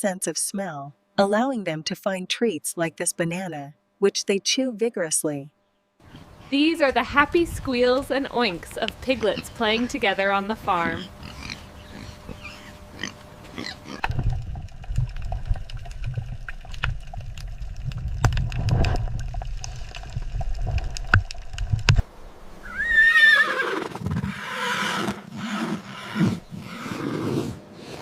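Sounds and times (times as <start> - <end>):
low rumbling: 6.0 - 23.2
horse whinnying: 22.6 - 27.5.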